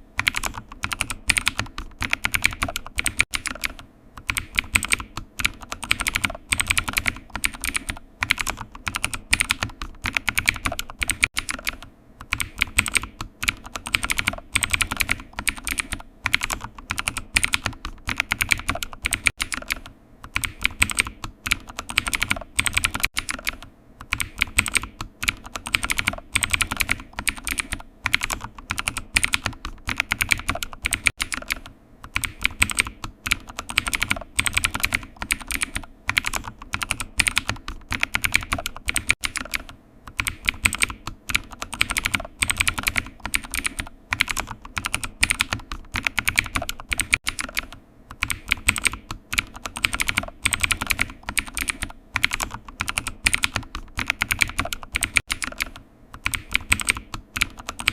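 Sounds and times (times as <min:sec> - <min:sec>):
computer keyboard typing: 0:00.0 - 0:57.9.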